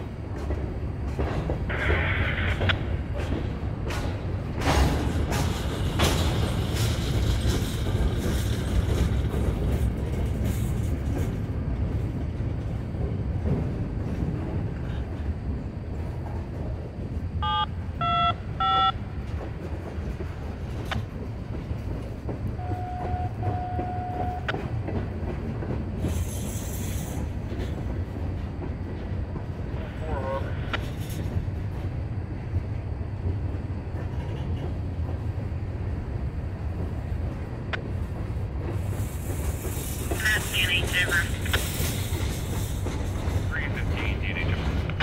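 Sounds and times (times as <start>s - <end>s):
wheels clacking over rail joints: 0.0s - 14.9s
freight train rumble: 0.0s - 45.0s.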